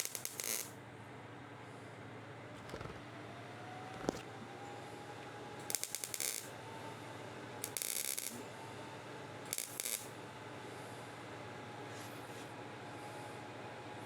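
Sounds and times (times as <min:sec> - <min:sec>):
welding crackling bursts: 0:00.0 - 0:00.7, 0:05.7 - 0:06.5, 0:07.7 - 0:08.3, 0:09.5 - 0:10.1
workshop hum: 0:02.6 - 0:04.8.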